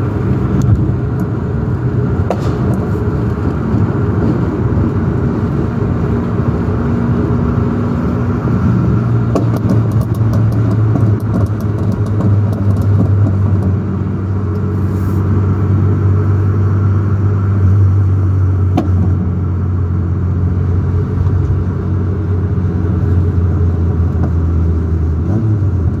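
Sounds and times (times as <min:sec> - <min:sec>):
sharp exhaust pops: 0:02.2 - 0:03.9, 0:09.2 - 0:13.9.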